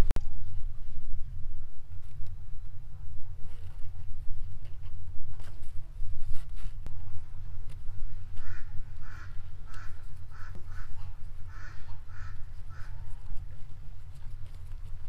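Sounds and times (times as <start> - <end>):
steady low rumble: 0.0 - 15.0
bird calling: 8.4 - 13.4.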